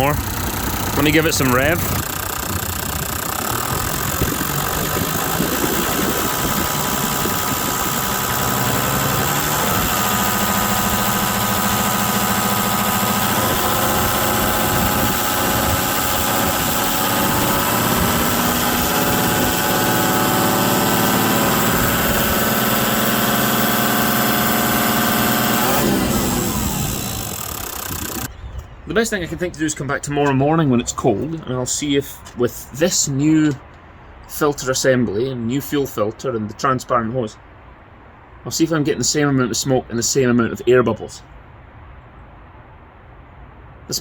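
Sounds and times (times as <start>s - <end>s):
diesel engine revving: 0.0s - 28.3s.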